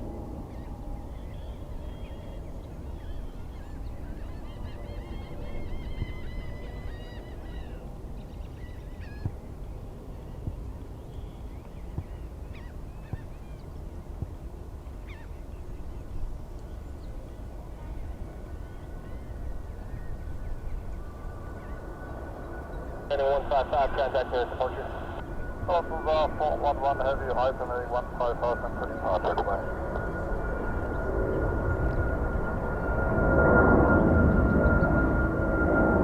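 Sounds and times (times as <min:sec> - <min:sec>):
high whine: 0:17.7 - 0:36.0.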